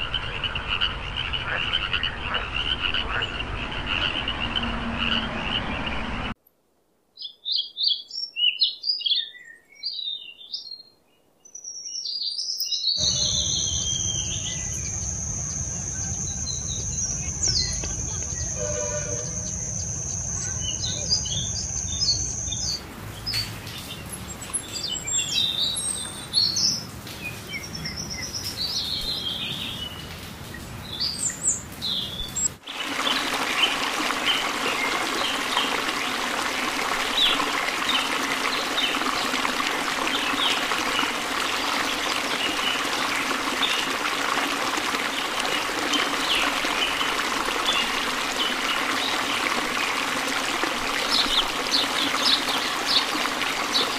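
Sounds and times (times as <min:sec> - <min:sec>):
birds chirping and calling: 0:11.6 - 0:30.1
hummingbird chirps: 0:12.4 - 0:22.8
fountain trickling and splashing: 0:13.0 - 0:53.9.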